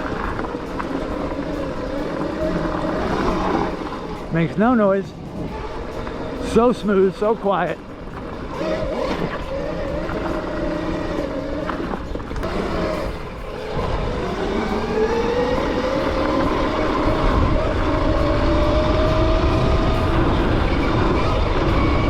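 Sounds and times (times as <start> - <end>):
low rumble: 0.0 - 22.0
electric motor whining: 5.1 - 22.0.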